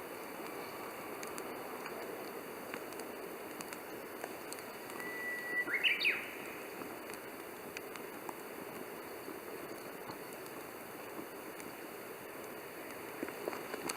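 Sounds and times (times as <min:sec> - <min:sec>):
wood fire crackling: 0:00.0 - 0:13.9
bird whistling call: 0:04.9 - 0:06.4.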